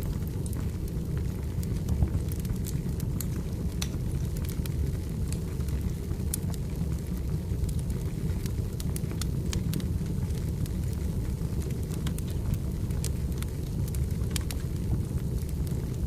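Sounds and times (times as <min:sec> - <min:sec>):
firewood crackling and popping: 0:00.0 - 0:16.0
low rumble of fire: 0:00.0 - 0:16.0.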